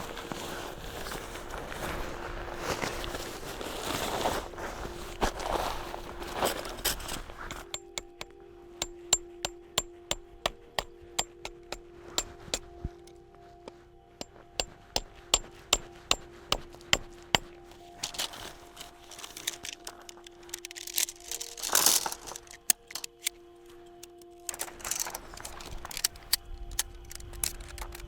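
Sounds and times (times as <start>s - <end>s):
tent pegs being hammered: 7.4s - 18.4s.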